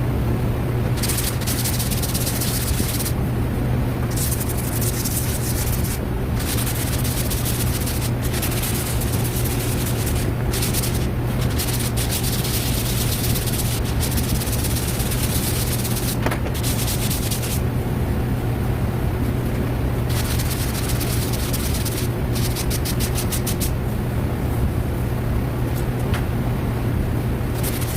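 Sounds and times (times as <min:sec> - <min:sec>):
constant low hum: 0:00.0 - 0:27.9
hand sanding: 0:00.9 - 0:03.2, 0:04.0 - 0:17.6, 0:20.0 - 0:23.8, 0:27.5 - 0:27.9.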